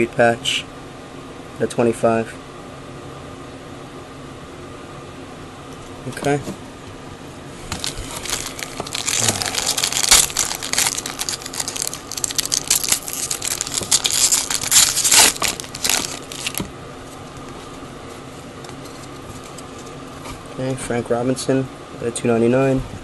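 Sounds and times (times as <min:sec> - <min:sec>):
wrapper tearing and crinkling: 0:07.7 - 0:16.7.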